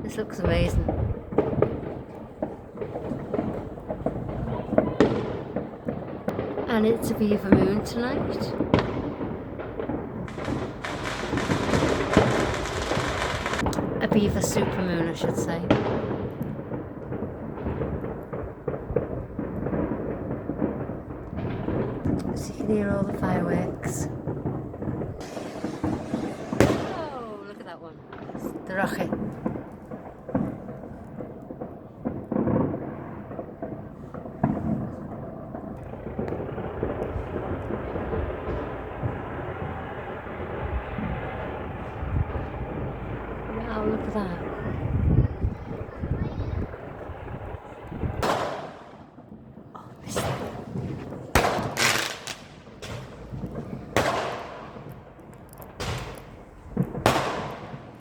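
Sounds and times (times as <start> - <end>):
steady low rumble: 0.0 - 15.8, 34.0 - 48.4
distant fireworks booming: 0.0 - 58.0.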